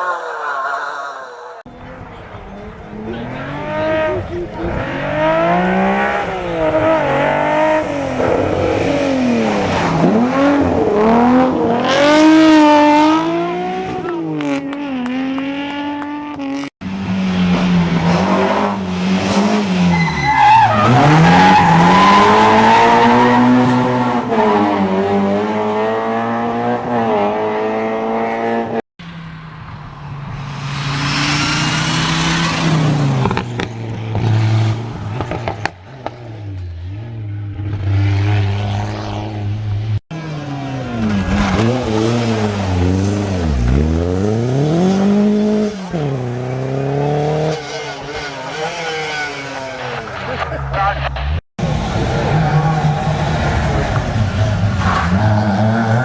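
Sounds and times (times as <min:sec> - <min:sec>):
rally car engines revving: 0:01.7 - 0:56.0.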